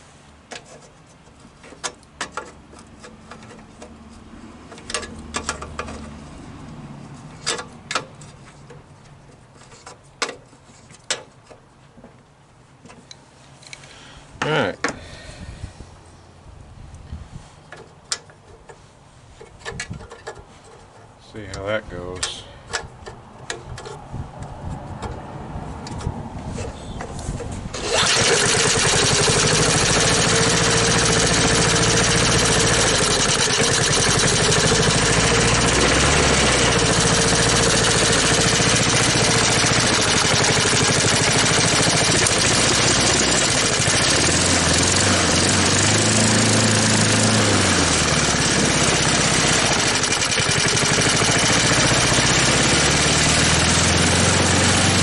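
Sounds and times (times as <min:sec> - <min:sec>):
mower engine starting and running: 0:01.6 - 0:08.6, 0:27.7 - 0:55.0.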